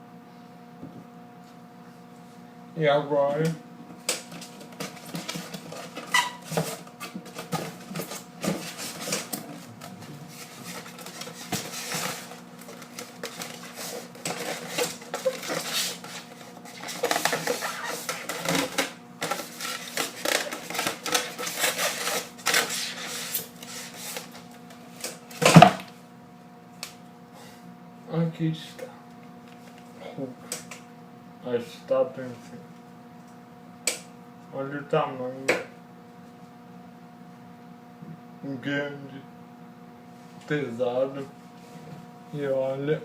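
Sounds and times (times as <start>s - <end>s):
packaging rustling and crinkling: 10.3s - 24.3s.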